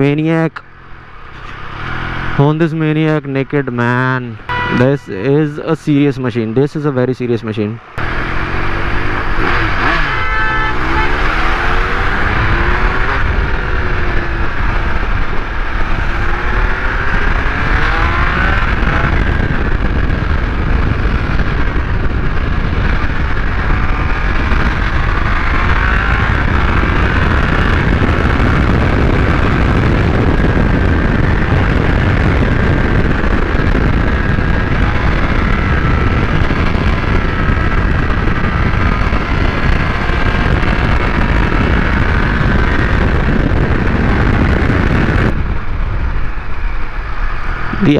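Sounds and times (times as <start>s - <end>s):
motorcycle engine running: 3.9s - 5.4s, 7.8s - 47.9s
wind rush on microphone: 8.0s - 47.9s.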